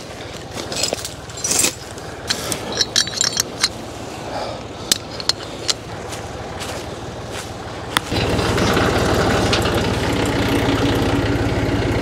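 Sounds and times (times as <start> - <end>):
tractor diesel engine idling: 0.0 - 12.0
metallic clinks and jingles: 0.2 - 3.8, 4.8 - 6.0.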